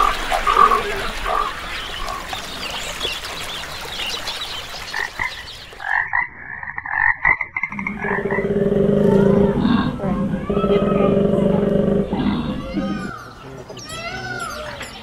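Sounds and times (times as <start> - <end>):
frogs croaking: 0.0 - 2.3, 4.9 - 14.1
koala low bellow: 7.7 - 13.2.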